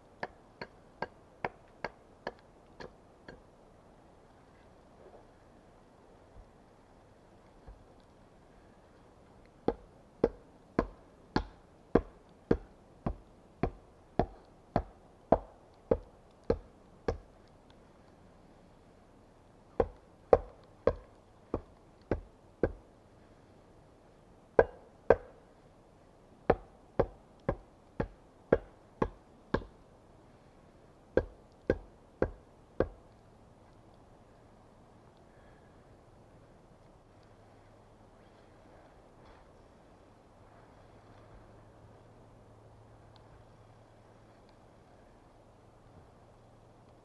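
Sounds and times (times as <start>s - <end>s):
tool striking wood: 24.6s - 25.4s.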